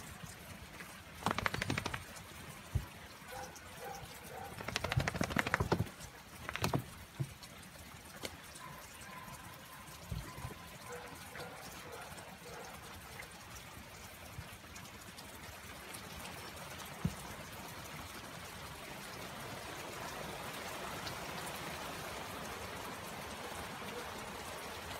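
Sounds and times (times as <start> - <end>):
rain falling and trickling: 0.0 - 24.9.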